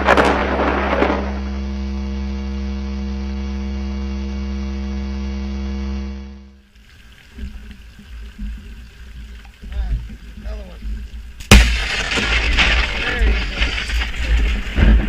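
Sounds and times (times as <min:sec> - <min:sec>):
noisy crash: 0:00.0 - 0:01.9, 0:11.4 - 0:15.0
electrical mains hum: 0:00.0 - 0:15.0.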